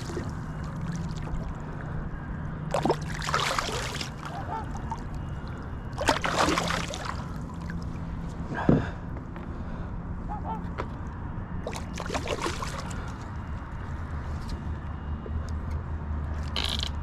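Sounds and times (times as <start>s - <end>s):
water splashing around kayak: 0.0s - 8.3s, 11.6s - 13.2s.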